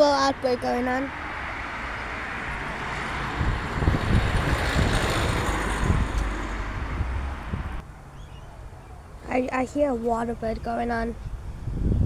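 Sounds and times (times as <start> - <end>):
passing vehicle tyre and engine noise: 0.4 - 8.2.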